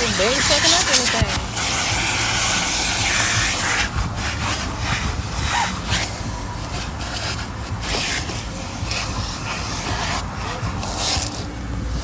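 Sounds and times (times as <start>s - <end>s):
vacuum cleaner humming: 0.0s - 9.0s
nozzle scraping car interior: 0.0s - 12.0s.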